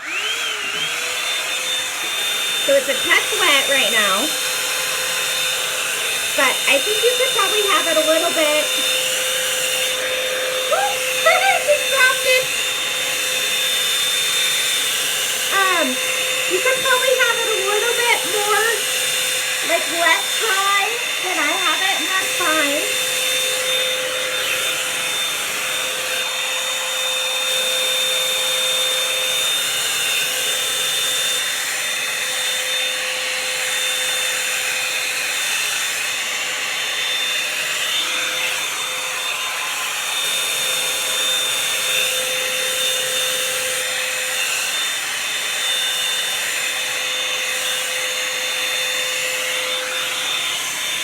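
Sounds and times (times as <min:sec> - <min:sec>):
high motor whine: 0:00.0 - 0:28.7
hot-air brush blowing: 0:00.0 - 0:51.0.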